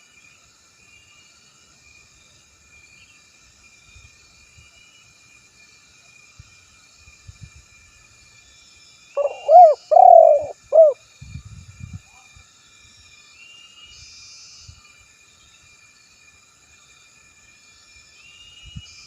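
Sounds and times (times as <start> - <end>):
dove cooing: 9.2 - 11.0.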